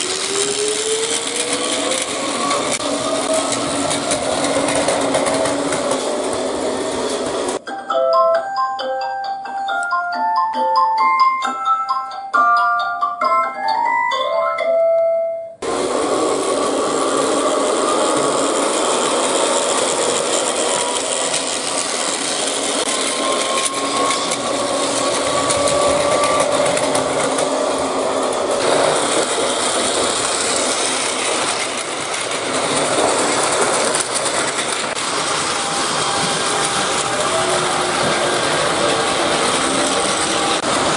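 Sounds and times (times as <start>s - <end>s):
electric train running: 0.0s - 7.7s, 15.6s - 40.9s
marimba jingle: 7.6s - 15.6s.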